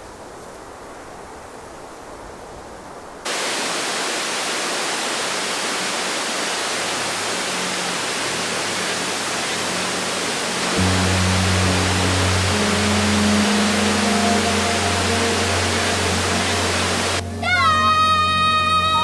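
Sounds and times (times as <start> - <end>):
steady rushing noise: 3.2 - 17.2
low sustained musical tones: 7.2 - 19.0.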